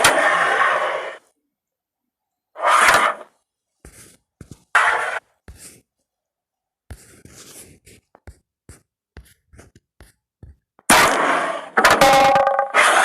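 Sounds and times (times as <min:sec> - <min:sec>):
loud clattering scrape: 0:02.6 - 0:05.2, 0:10.9 - 0:13.0.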